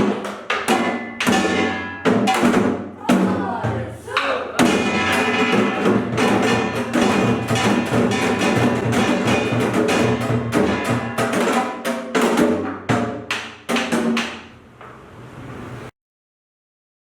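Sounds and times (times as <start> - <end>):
barrel drums: 0.0 - 14.6
hourglass drums: 4.6 - 11.4.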